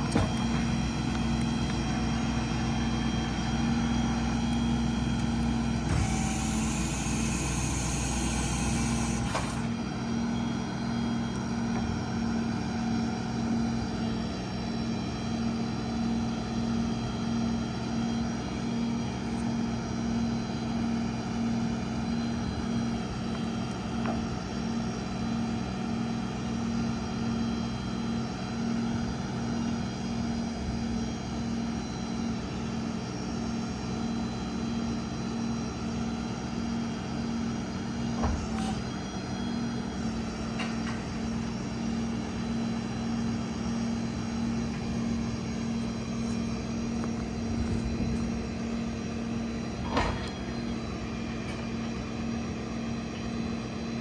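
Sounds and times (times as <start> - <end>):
diesel engine pulsing hum: 0.0 - 54.0.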